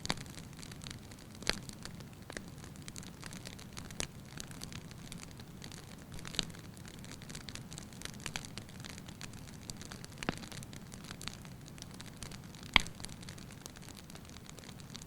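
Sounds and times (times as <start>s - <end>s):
fire burning with crackles: 0.0s - 15.0s
sharp wood pops: 12.8s - 13.0s.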